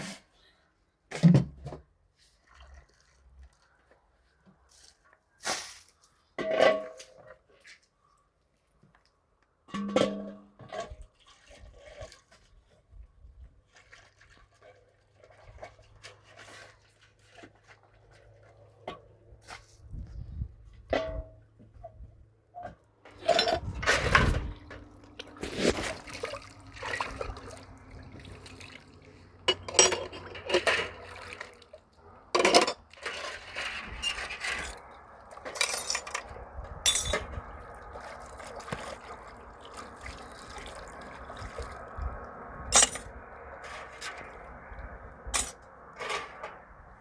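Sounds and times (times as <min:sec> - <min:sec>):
water splashing and sloshing: 0:01.6 - 0:08.8, 0:09.7 - 0:21.2, 0:22.9 - 0:47.0
running water: 0:23.2 - 0:32.1, 0:37.6 - 0:43.0.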